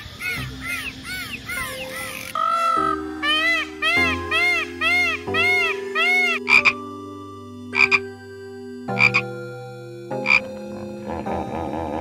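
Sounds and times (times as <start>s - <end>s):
animal chirps: 0.0s - 6.9s, 8.9s - 9.3s.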